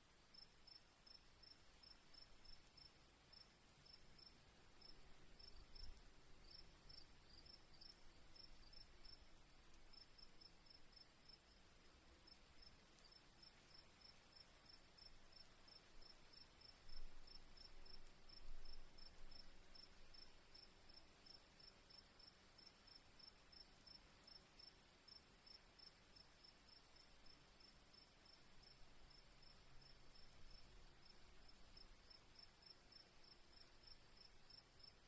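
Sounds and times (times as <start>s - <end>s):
cricket continuous trill: 0.1s - 35.0s.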